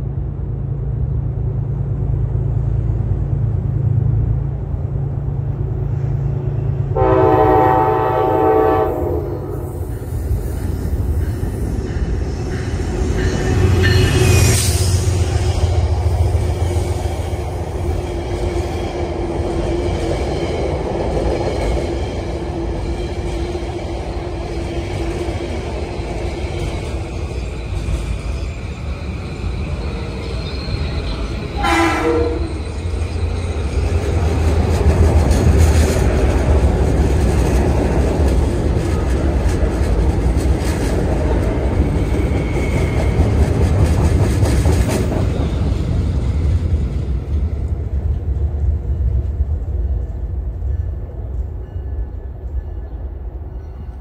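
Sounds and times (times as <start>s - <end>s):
train wheels rumbling on rail: 0.0s - 54.0s
train horn blast: 6.9s - 9.8s, 31.6s - 32.6s.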